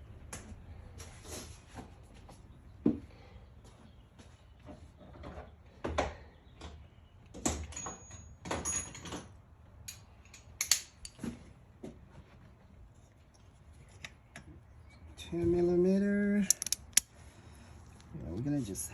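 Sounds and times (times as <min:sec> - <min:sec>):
metal bolt being handled: 0:16.4 - 0:17.1
plastic parts clicking and rustling: 0:16.4 - 0:17.1.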